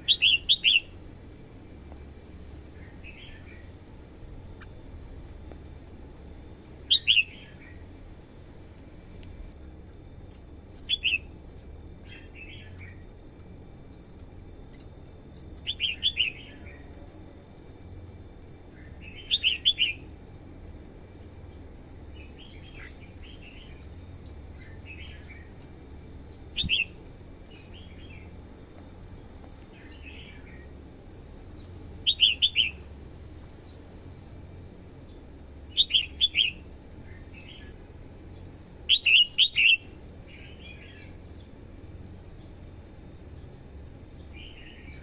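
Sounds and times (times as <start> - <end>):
bird singing: 0.0 - 6.0, 6.7 - 8.0, 10.8 - 13.4, 14.0 - 17.2, 17.8 - 20.2, 21.2 - 25.6, 26.3 - 28.4, 29.7 - 30.8, 31.6 - 32.9, 35.0 - 37.8, 38.8 - 41.5, 44.2 - 45.0
high-pitched whine: 0.0 - 45.0.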